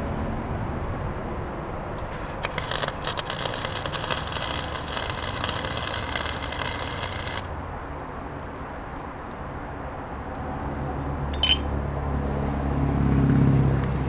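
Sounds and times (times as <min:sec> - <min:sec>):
steady low hum: 0:00.0 - 0:09.4
welding arc crackling: 0:02.0 - 0:07.5.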